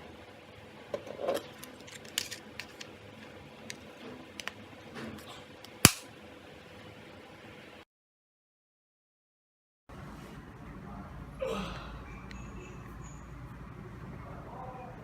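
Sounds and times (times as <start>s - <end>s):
loud sharp snap: 5.9s - 6.1s.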